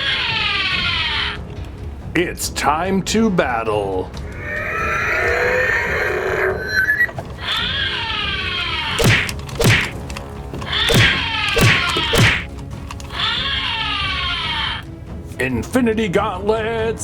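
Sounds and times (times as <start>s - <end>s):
punch impacts: 9.0s - 10.0s, 10.9s - 12.5s.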